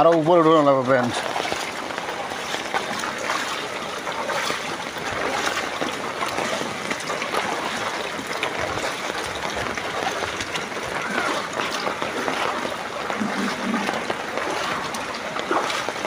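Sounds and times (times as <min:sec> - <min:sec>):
floodwater splashing and running: 0:00.0 - 0:16.0.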